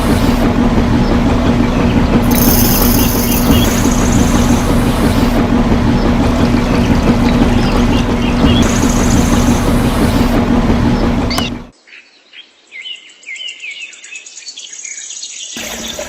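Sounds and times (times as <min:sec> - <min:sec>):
small motor running: 0:00.0 - 0:11.7
birds chirping: 0:00.9 - 0:05.2, 0:05.8 - 0:10.2.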